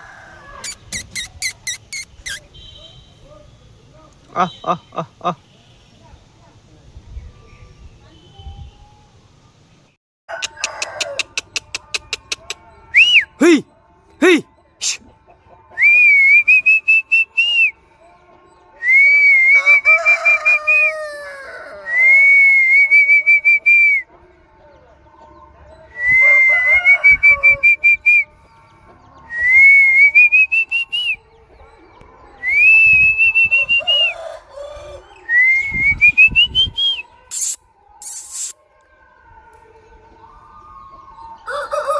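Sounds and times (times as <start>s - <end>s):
fainter lower calls: 0.6s - 3.0s
trilled whistling: 0.7s - 2.6s, 12.9s - 13.4s, 15.7s - 17.8s, 18.8s - 20.9s, 21.9s - 24.1s, 25.9s - 28.3s, 29.3s - 31.2s, 32.4s - 34.2s, 35.2s - 38.5s.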